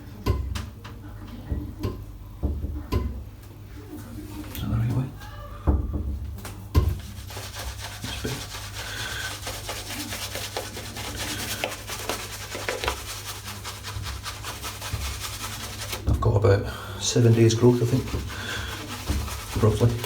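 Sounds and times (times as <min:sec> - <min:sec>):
shaving brush scrubbing stubble: 0:06.9 - 0:16.2, 0:17.0 - 0:20.0.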